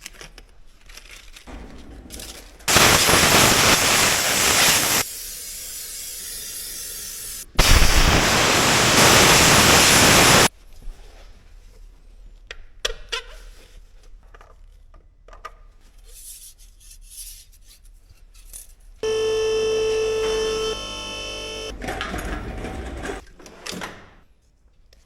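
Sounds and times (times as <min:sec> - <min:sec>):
loud hiss of air jet: 0:02.7 - 0:10.5.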